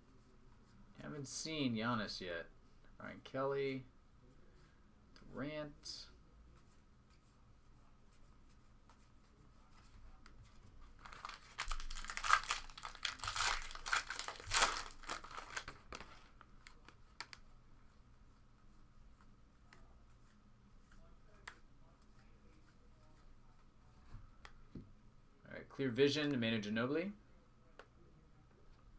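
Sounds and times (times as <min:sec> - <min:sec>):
foil wrapper tearing and crinkling: 0:11.0 - 0:16.2.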